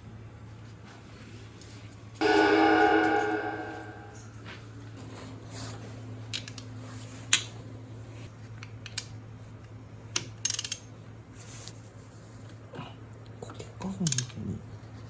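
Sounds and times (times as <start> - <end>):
steady low hum: 2.2 - 4.4.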